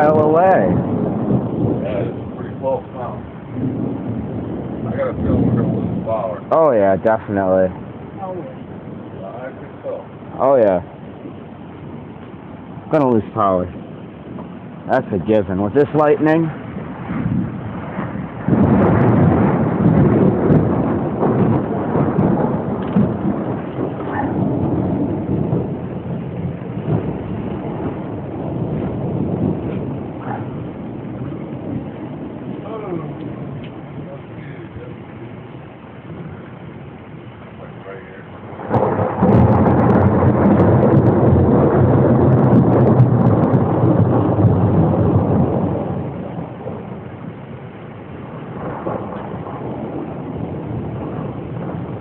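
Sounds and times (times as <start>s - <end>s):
rain: 0.0s - 52.0s
thunder rumbling: 0.0s - 52.0s.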